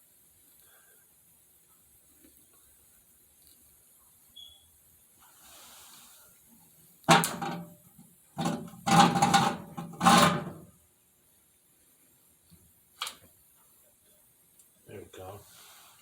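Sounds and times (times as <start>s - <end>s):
faint rustle: 4.5s - 6.7s, 13.6s - 16.0s
hard objects clattering: 8.4s - 10.6s.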